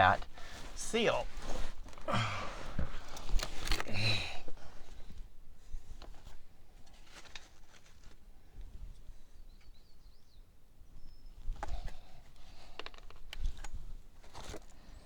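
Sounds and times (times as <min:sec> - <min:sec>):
short breath: 0:02.1 - 0:03.0.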